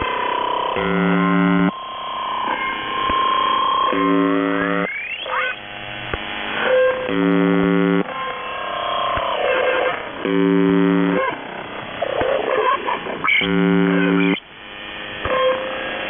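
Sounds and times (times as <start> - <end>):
harsh radio buzz tones: 0.0 - 16.0
electronic warbling tones: 2.4 - 5.7, 12.6 - 14.4.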